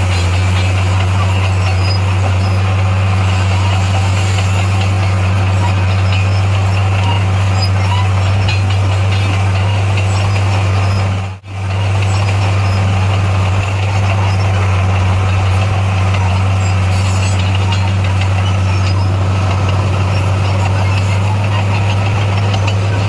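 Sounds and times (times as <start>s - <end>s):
bulldozer diesel engine humming: 0.0s - 23.0s.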